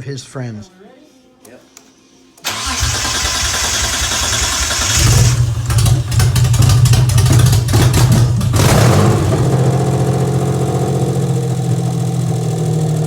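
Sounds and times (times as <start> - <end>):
car engine through exhaust: 2.8 - 13.0.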